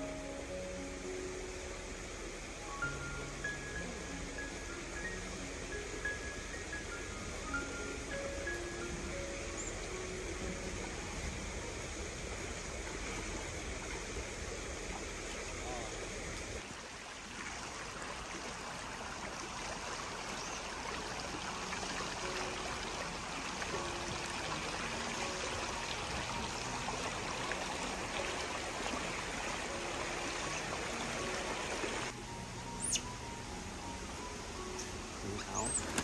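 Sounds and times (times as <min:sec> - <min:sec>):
flowing water rushing: 0:00.0 - 0:36.0.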